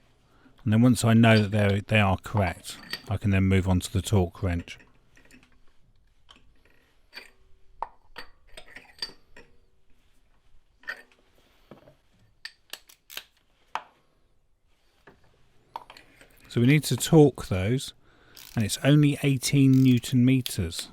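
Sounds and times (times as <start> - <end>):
metallic tool clicks and clinks: 19.4 - 20.9.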